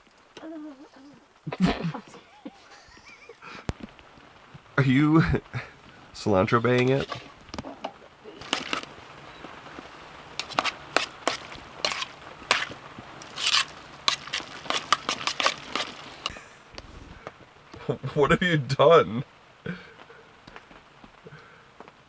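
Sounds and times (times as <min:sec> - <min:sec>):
knife cutting on cutting board: 0:10.4 - 0:17.1.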